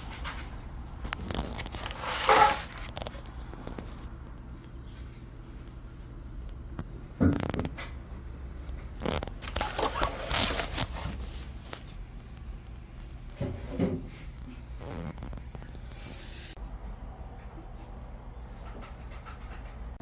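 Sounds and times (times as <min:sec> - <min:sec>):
objects clattering and rustling: 0:00.0 - 0:04.0, 0:09.0 - 0:12.0, 0:13.3 - 0:16.5.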